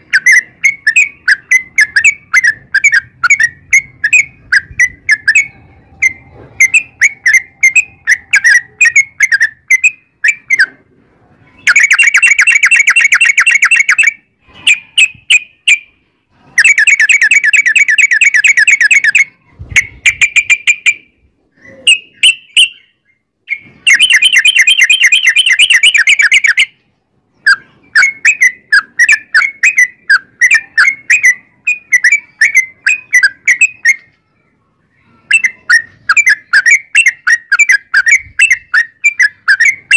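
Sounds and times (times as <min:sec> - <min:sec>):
bird chirping: 0:00.0 - 0:10.8, 0:11.4 - 0:39.9
bird rapid trills: 0:11.6 - 0:15.8, 0:23.5 - 0:26.8.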